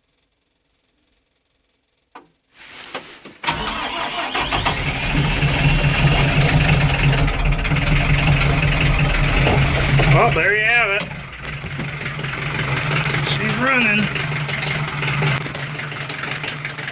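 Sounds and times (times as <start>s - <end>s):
diesel engine starting and running: 3.4s - 16.9s.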